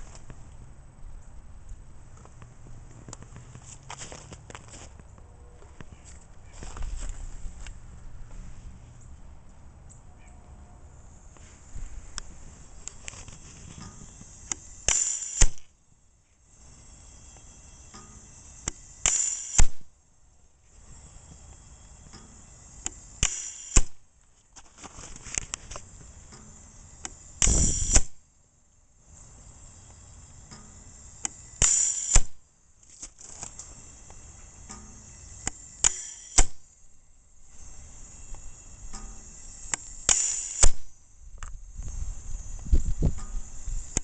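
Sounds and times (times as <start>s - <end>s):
gas hissing: 11.1s - 15.8s, 16.4s - 24.1s, 25.3s - 28.2s, 28.9s - 44.0s
valve click: 12.2s - 15.7s, 16.6s - 19.9s, 20.9s - 24.0s, 25.4s - 28.2s, 29.8s - 36.6s, 37.5s - 44.0s
rush of gas: 27.4s - 28.1s.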